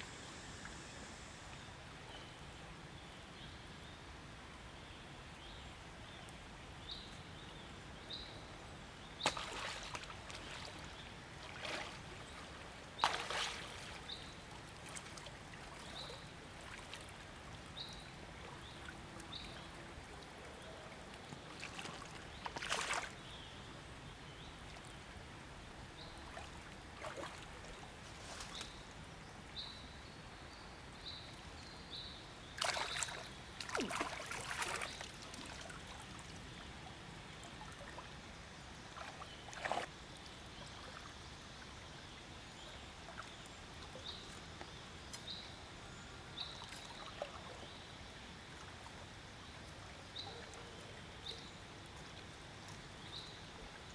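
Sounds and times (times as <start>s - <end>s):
water splashing and sloshing: 9.2s - 17.8s, 21.0s - 23.3s, 26.2s - 28.8s, 32.6s - 36.6s, 37.4s - 41.1s, 46.6s - 47.7s.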